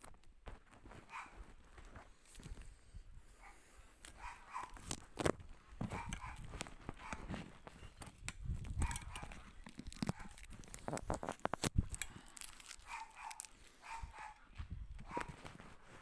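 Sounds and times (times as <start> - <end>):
rustling: 0.0 - 16.0
dog barking: 1.0 - 1.4, 4.2 - 4.8, 5.9 - 7.3, 8.8 - 9.4, 10.1 - 10.4, 12.8 - 15.4.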